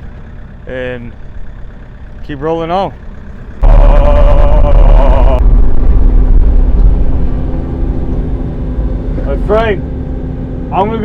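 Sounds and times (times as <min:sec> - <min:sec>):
excavator engine running: 0:00.0 - 0:11.0
high whine: 0:03.5 - 0:11.0.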